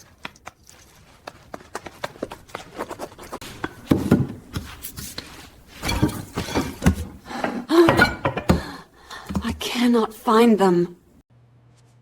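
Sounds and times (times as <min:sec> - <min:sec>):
objects being handled: 0:00.0 - 0:09.6.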